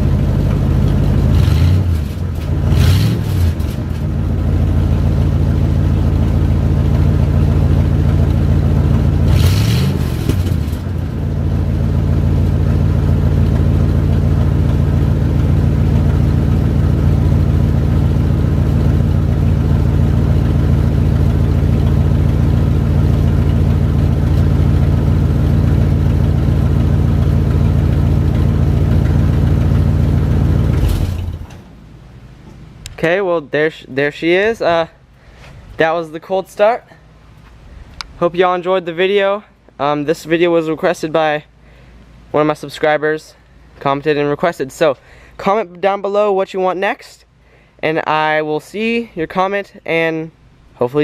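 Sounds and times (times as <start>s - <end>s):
truck engine idling with rev: 0.0s - 33.1s.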